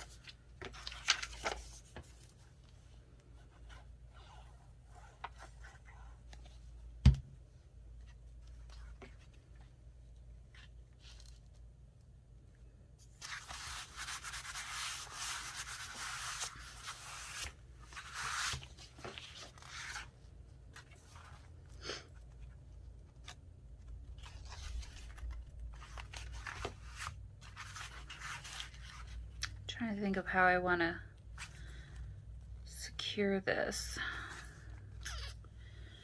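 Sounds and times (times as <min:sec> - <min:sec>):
paper rustling: 0:00.0 - 0:02.6, 0:13.1 - 0:21.6, 0:23.0 - 0:29.2.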